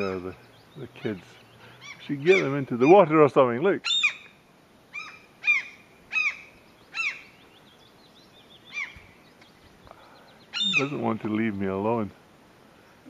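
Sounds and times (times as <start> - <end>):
gull harsh alarm calls: 0.0 - 3.2, 3.8 - 4.3, 4.9 - 7.3, 10.5 - 11.3.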